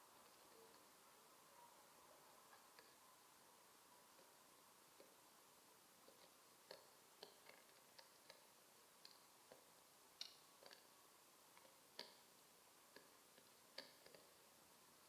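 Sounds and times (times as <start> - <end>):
faint irregular clicks and taps: 2.5 - 3.0, 4.1 - 5.2, 6.0 - 14.5.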